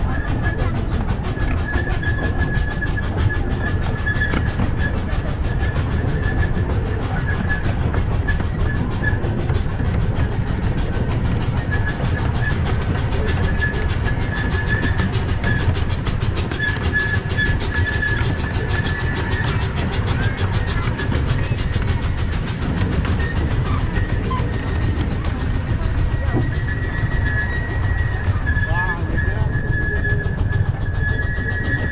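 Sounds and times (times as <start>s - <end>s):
miniature train rumbling and rattling: 0.0s - 31.9s.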